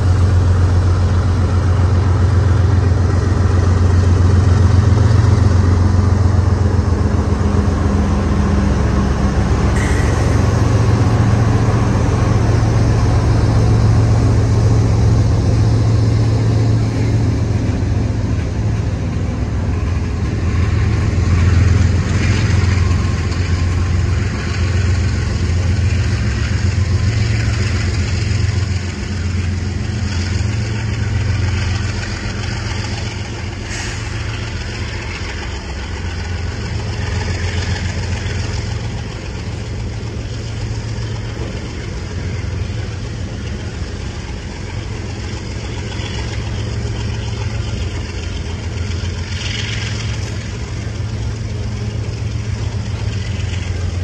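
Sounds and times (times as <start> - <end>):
train running hiss: 0.0 - 54.0
train wheels rumbling on rail: 0.0 - 54.0
sharp clank or squeal: 9.8 - 11.0.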